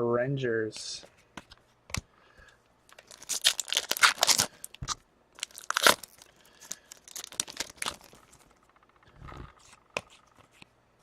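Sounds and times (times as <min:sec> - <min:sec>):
wrapper crinkling and tearing: 0:02.9 - 0:08.5.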